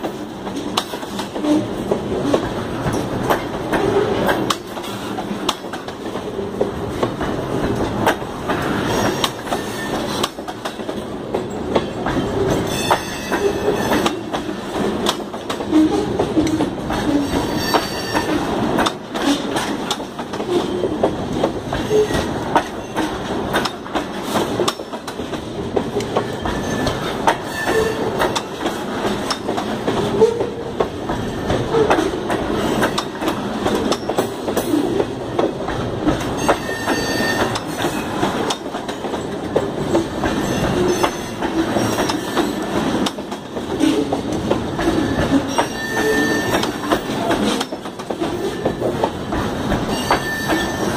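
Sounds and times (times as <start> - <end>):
freight cars rumbling and clanking: 0.0 - 50.9
high wheel squeals: 17.2 - 18.4, 26.4 - 28.1, 36.4 - 38.1, 45.0 - 46.9, 49.9 - 50.9.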